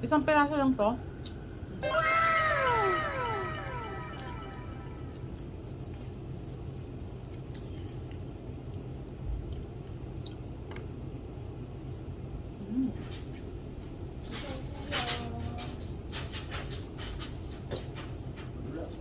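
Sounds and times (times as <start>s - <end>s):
low hum: 1.5s - 7.2s
short low tone: 1.8s - 5.3s.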